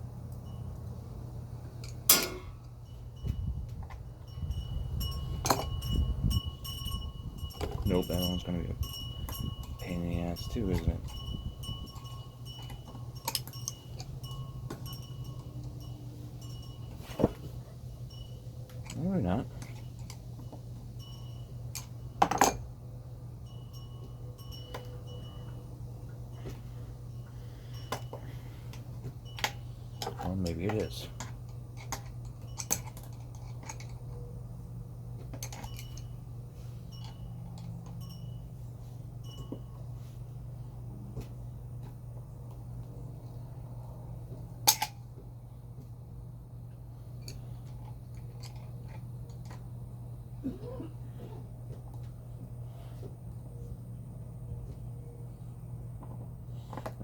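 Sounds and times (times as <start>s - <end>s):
steady low hum: 0.0s - 57.0s
hand tools clinking on metal: 1.8s - 22.7s, 23.4s - 34.4s, 35.2s - 39.9s, 47.2s - 49.8s.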